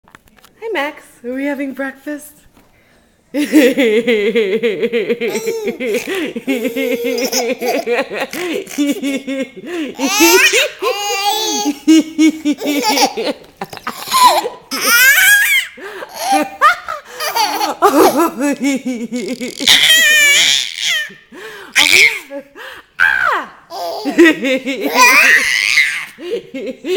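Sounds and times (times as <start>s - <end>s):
toddler belly-laughing: 5.2s - 9.4s, 10.0s - 18.5s, 19.2s - 21.2s, 23.7s - 26.2s
toddler squealing with laughter: 14.1s - 16.4s, 19.6s - 21.2s, 21.8s - 22.3s, 24.9s - 26.2s.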